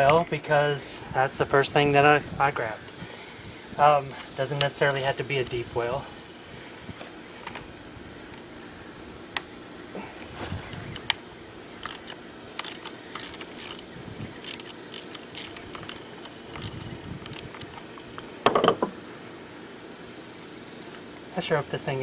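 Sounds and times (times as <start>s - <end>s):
ratchet wrench clicking: 11.8s - 17.8s.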